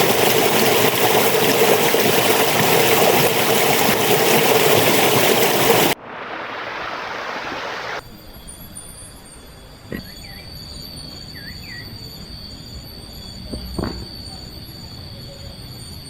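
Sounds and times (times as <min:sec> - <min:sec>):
stream water rushing: 0:00.0 - 0:08.0
high insect calls: 0:00.0 - 0:16.0.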